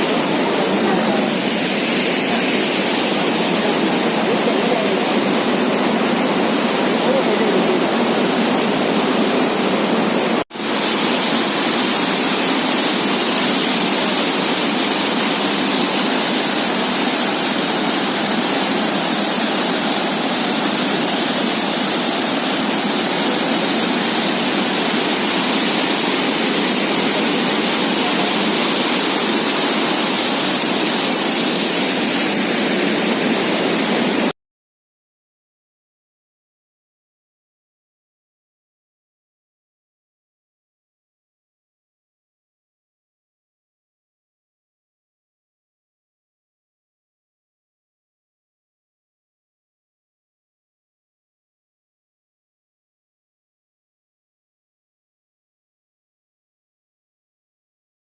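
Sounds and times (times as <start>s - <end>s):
waterfall rushing: 0.0s - 34.3s.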